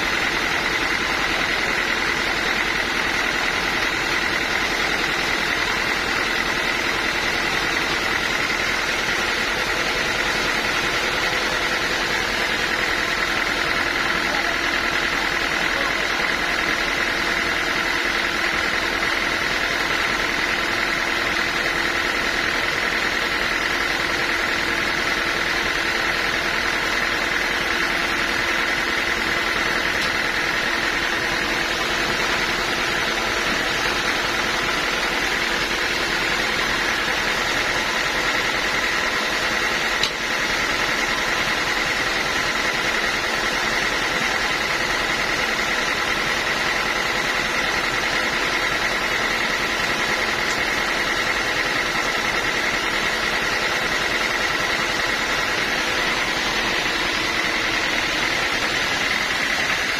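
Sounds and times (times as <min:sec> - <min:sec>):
sawmill machinery humming: 0:00.0 - 0:59.9
sharp click: 0:40.0 - 0:40.2.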